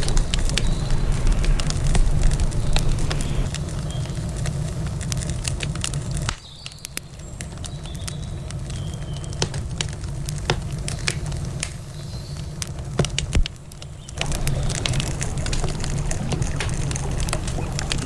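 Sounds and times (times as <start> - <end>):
river water rushing: 0.0 - 3.5, 14.2 - 18.0
campfire crackling: 0.0 - 18.0.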